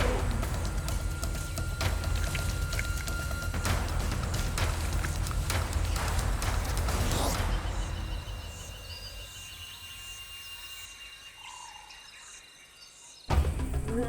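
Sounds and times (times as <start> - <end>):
insects trilling: 0.0 - 6.4, 7.6 - 14.0.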